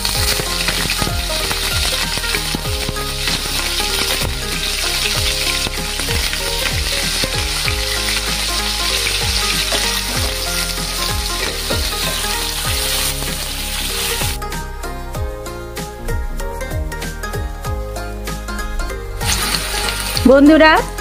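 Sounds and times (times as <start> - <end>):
wooden spatula stirring: 0.0 - 14.4
food sizzling in hot oil: 0.0 - 15.2, 19.2 - 21.0
background music with beat: 0.0 - 21.0.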